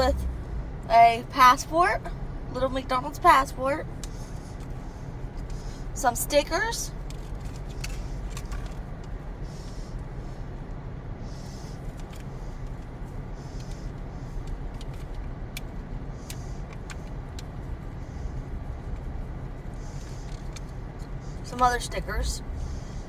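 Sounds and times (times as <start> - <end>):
car engine running: 0.0 - 23.0
paper stickers clicking and rustling: 7.0 - 9.2.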